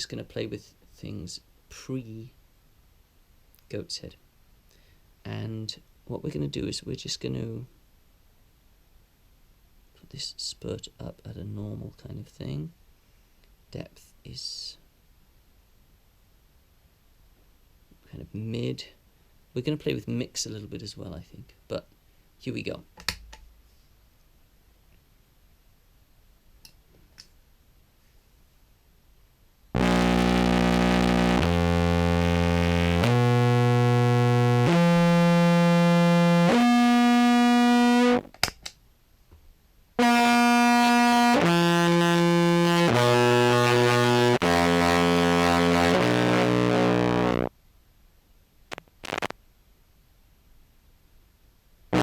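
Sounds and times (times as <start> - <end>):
distorted clarinet held notes: 29.8 - 38.3, 40.0 - 47.5, 48.8 - 49.3.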